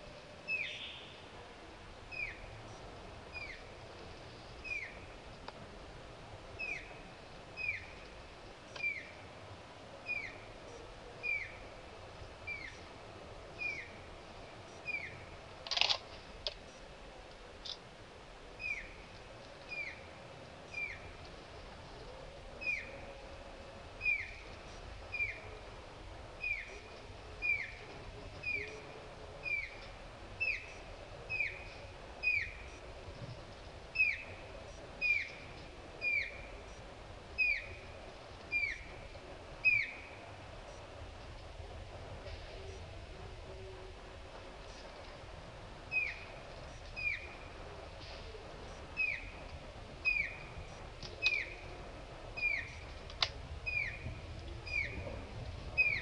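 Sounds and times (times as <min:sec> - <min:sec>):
flycatcher calling: 0:33.9 - 0:34.4, 0:35.0 - 0:36.7, 0:37.4 - 0:37.9, 0:39.6 - 0:40.2, 0:45.9 - 0:47.5, 0:48.8 - 0:49.4, 0:50.0 - 0:51.8, 0:52.4 - 0:53.0, 0:53.6 - 0:55.0, 0:55.7 - 0:56.0.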